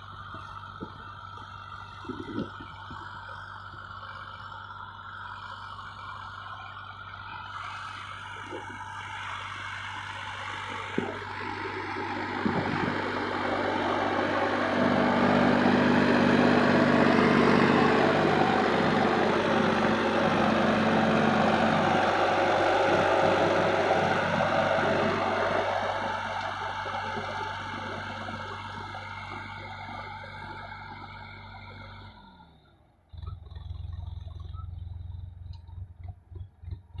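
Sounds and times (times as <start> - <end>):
low uneven rumble with thumps: 0.0 - 32.2, 33.0 - 37.0
tractor engine at high revs: 0.0 - 37.0.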